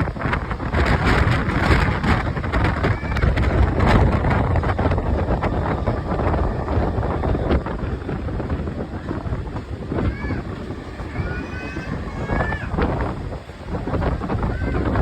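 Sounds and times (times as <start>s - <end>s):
electric train running: 0.0s - 15.0s
wind buffeting microphone: 0.0s - 15.0s.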